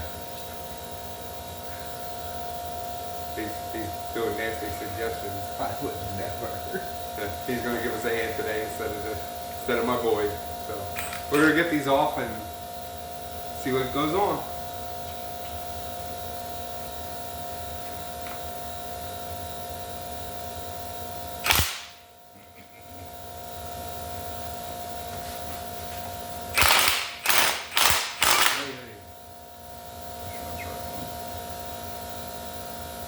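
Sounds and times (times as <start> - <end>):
workshop hum: 0.0 - 33.0
short loud tool bursts: 21.4 - 22.0, 26.5 - 28.8.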